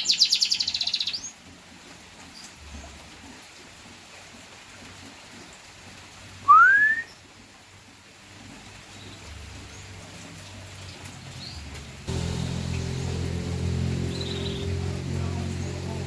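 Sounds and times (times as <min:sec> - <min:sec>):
canary whistling: 0:06.5 - 0:07.2.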